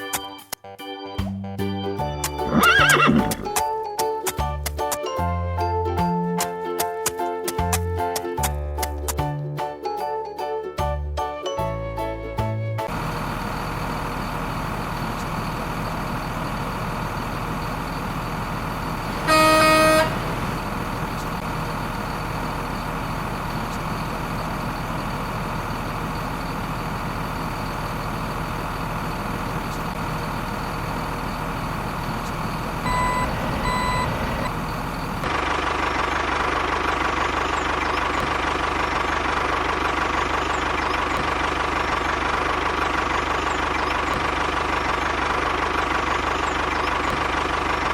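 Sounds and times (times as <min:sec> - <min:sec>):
vehicle engine running: 0:02.0 - 0:03.9, 0:12.6 - 0:47.9
horn honk: 0:19.1 - 0:20.6
short beeps: 0:32.8 - 0:34.5.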